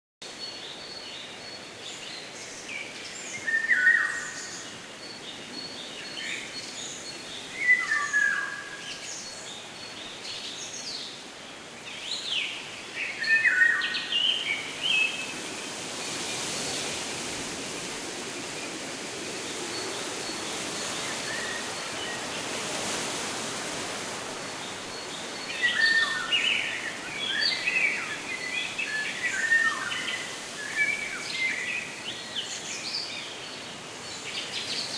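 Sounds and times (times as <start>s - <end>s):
background hiss: 0.3s - 34.9s
birds chirping: 12.0s - 33.2s.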